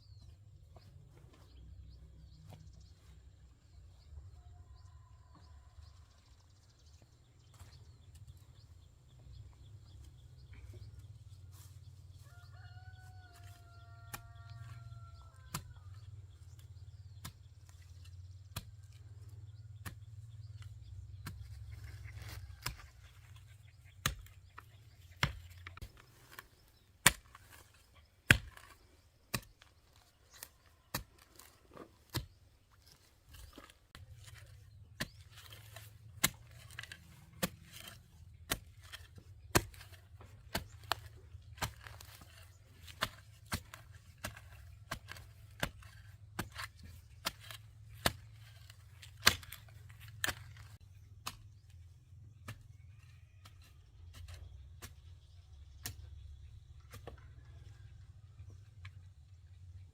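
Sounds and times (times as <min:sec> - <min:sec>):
wood being chopped: 0:23.9 - 0:25.9, 0:36.2 - 0:51.7.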